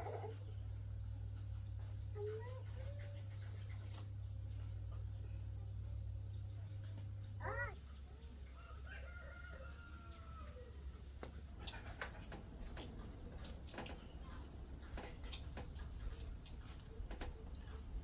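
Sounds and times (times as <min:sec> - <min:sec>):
rooster crowing: 0:08.4 - 0:10.9
light clicks and taps: 0:11.2 - 0:18.0.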